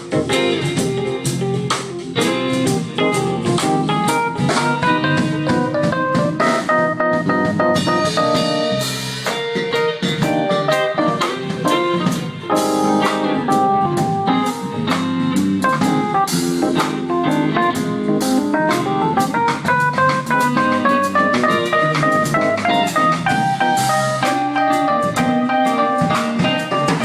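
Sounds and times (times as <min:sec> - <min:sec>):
bass guitar: 0:00.0 - 0:27.0
drum kit: 0:00.0 - 0:27.0
electric guitar runs: 0:00.0 - 0:27.0.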